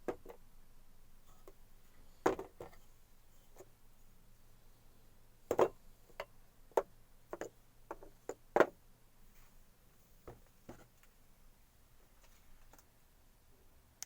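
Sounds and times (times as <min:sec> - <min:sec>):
knocks and clicks of hard objects: 0:05.5 - 0:08.8.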